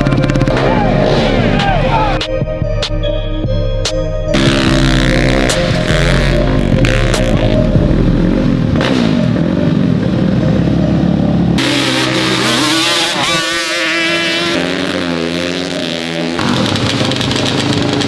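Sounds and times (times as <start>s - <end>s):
racing engines revving: 0.0s - 2.2s, 4.4s - 18.0s
single engine with wavering pitch: 0.0s - 2.2s, 4.3s - 18.0s.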